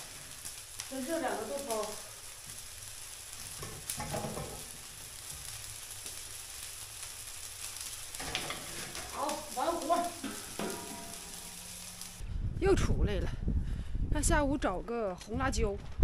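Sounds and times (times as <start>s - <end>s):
food frying in a wok: 0.0s - 12.2s.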